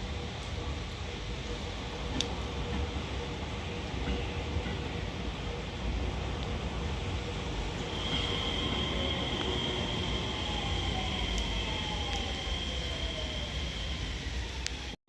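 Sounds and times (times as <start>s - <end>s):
high-pitched whine: 0.0s - 15.0s
train rumble: 0.0s - 15.0s
lower falling whine: 7.2s - 15.0s.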